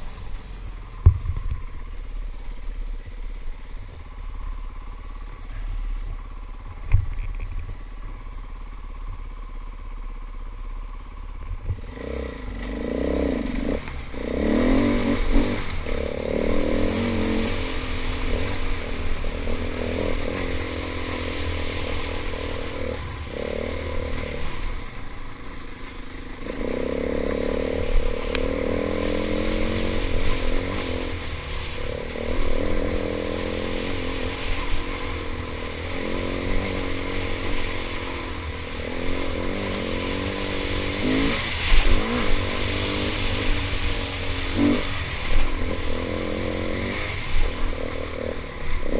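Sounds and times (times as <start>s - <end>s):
dirt bike engine revving: 11.7s - 48.9s.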